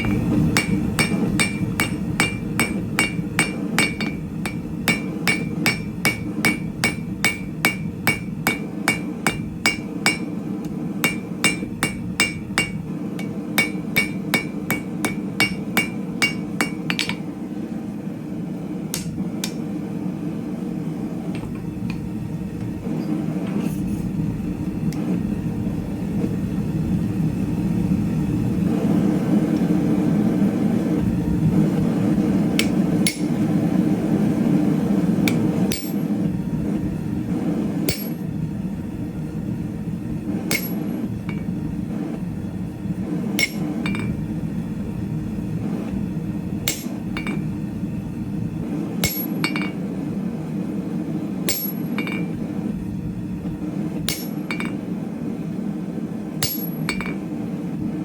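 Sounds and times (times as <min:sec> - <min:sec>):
hammer striking steel on anvil: 0:00.0 - 0:17.3, 0:18.9 - 0:19.7, 0:21.4 - 0:21.7, 0:32.5 - 0:33.5, 0:35.3 - 0:36.1, 0:37.9 - 0:38.2, 0:40.5 - 0:41.5, 0:43.4 - 0:44.2, 0:46.7 - 0:47.6, 0:49.0 - 0:49.8, 0:51.5 - 0:52.4, 0:54.1 - 0:54.8, 0:56.4 - 0:57.3.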